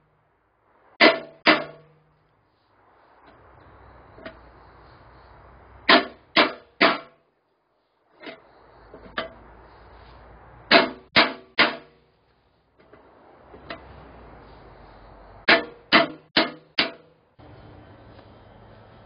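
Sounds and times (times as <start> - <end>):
hammer blows on sheet steel: 0.9 - 2.1, 5.8 - 7.2, 10.6 - 12.1, 15.4 - 17.5.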